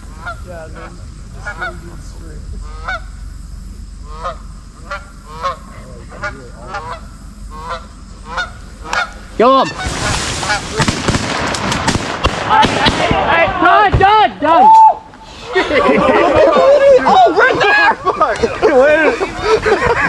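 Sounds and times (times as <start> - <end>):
geese honking: 0.0 - 11.9
man shouting: 12.5 - 15.1, 16.4 - 18.0.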